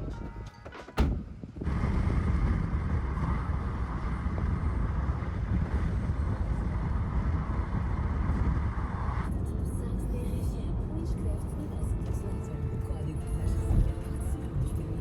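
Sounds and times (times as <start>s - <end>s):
music: 0.0s - 1.1s, 11.0s - 15.0s
vehicle interior rumble and hiss: 1.0s - 15.0s.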